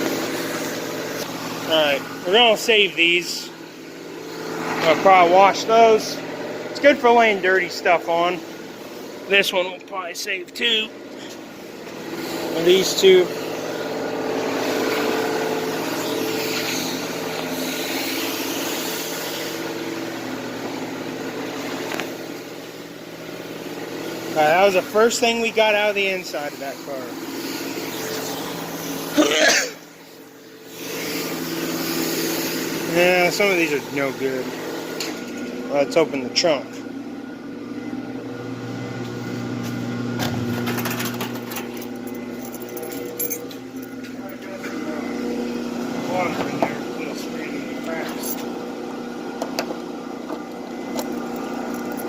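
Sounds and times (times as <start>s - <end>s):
low machine hum: 0.0s - 52.0s
hiss: 15.7s - 19.7s, 30.0s - 33.7s.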